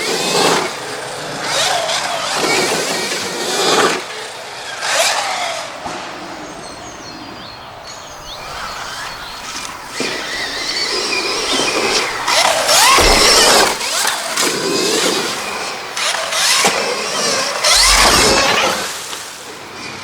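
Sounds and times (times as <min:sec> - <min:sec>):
electric motor whining: 0:08.2 - 0:19.4.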